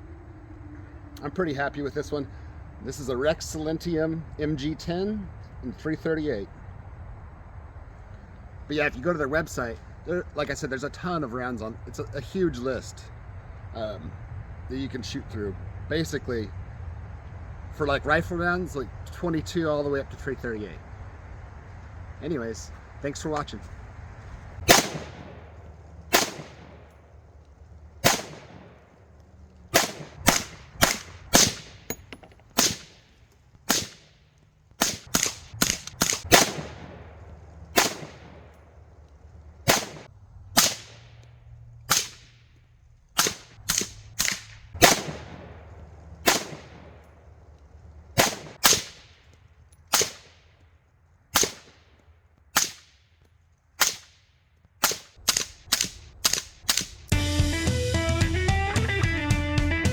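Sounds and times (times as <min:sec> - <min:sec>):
suppressed rifle shots: 0:24.6 - 0:27.3, 0:28.0 - 0:38.7, 0:39.6 - 0:41.2, 0:41.9 - 0:42.4, 0:43.2 - 0:47.3, 0:48.2 - 0:49.2, 0:49.9 - 0:50.4, 0:51.4 - 0:53.0, 0:53.8 - 0:54.2, 0:54.8 - 0:57.0.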